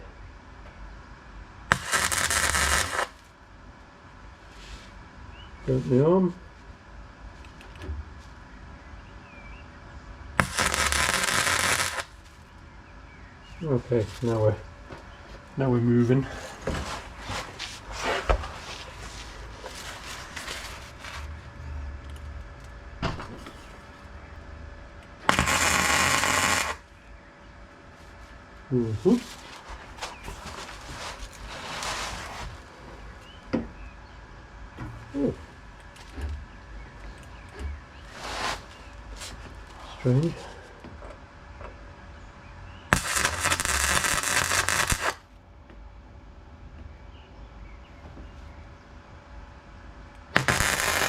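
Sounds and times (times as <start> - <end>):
welder arc crackling: 1.7 - 3.3, 10.4 - 12.4, 25.2 - 26.9, 42.9 - 45.2, 50.3 - 51.0.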